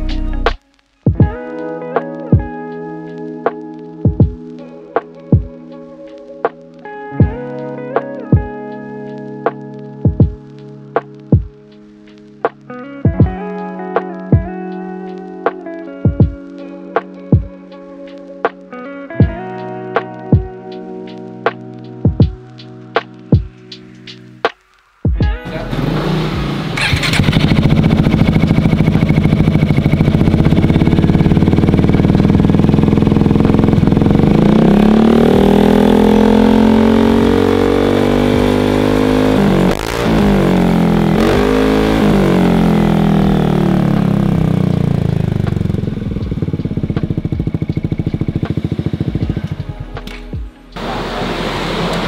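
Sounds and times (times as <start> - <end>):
scooter engine idling and revving: 25.4 - 50.0, 50.8 - 52.0.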